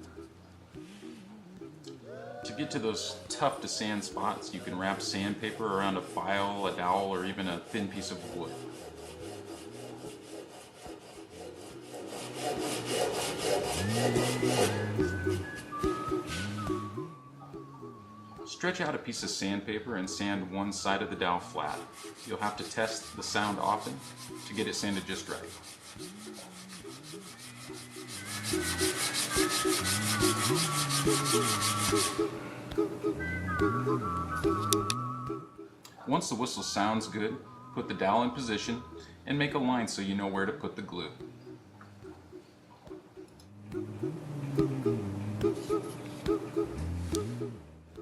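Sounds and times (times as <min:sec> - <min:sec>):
steady pitched tones: 0:00.0 - 0:48.0
sandpaper rubbing on wood: 0:02.8 - 0:15.4, 0:20.1 - 0:32.3.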